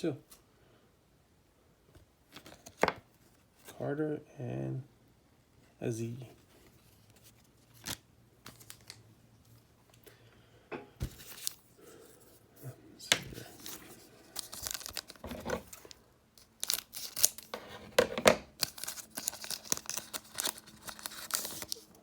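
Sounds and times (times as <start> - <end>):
wrapper tearing and crinkling: 7.6 - 9.0, 13.4 - 17.6, 18.5 - 22.0.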